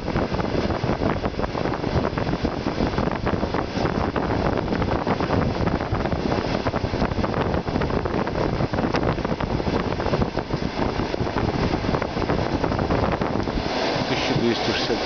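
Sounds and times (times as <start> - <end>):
train rushing noise: 7.9 - 15.0.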